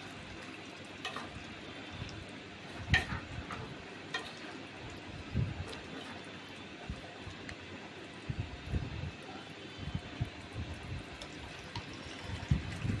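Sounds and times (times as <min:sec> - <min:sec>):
faint cooking hiss: 0:00.0 - 0:13.0
utensil scraping in a pan: 0:02.6 - 0:04.8, 0:05.6 - 0:06.6.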